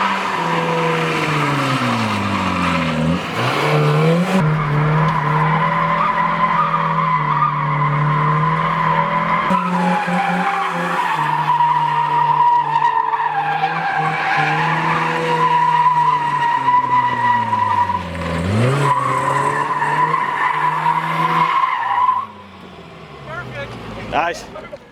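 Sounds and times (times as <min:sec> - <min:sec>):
engine revving high: 0:00.0 - 0:12.4, 0:13.5 - 0:21.6
tyres squealing in a skid: 0:00.0 - 0:24.9.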